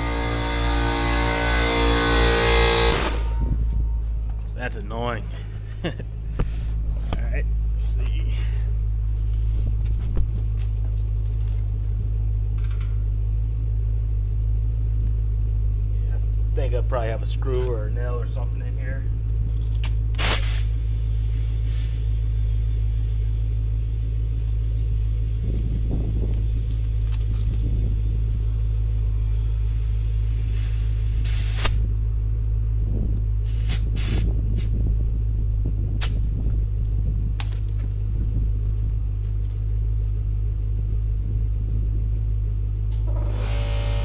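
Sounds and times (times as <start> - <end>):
car engine idling: 0.0 - 44.0
compressed air hissing: 20.1 - 23.6, 28.0 - 31.8, 33.4 - 34.7.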